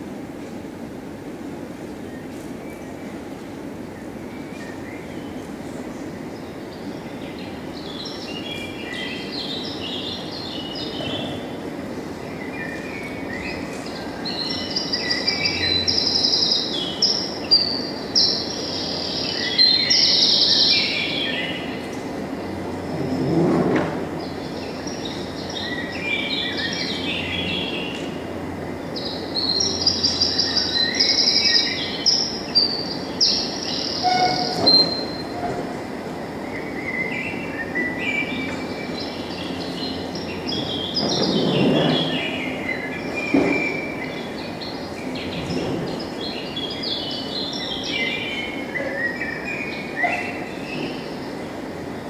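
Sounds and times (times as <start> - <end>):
birds chirping and trilling: 28.8 - 51.9.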